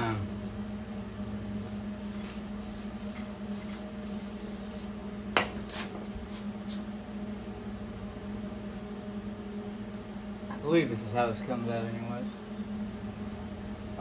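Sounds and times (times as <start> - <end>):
aerosol can spraying: 1.6 - 4.9.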